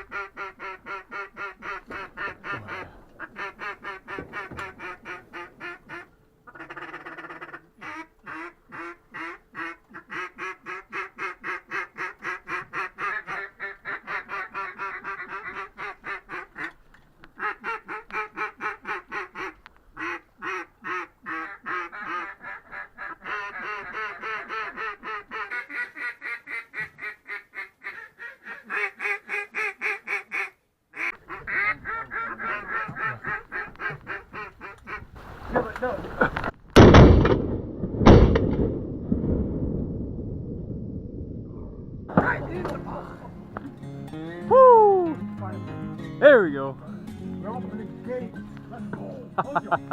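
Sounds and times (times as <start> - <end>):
duck quacking: 0.0 - 16.8, 17.4 - 36.4.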